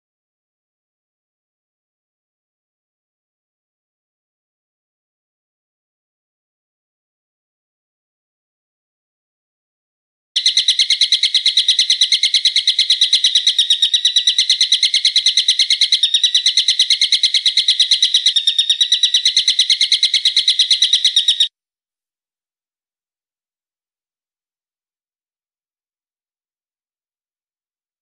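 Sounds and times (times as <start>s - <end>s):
bird's shrill repeated call: 10.4s - 21.5s.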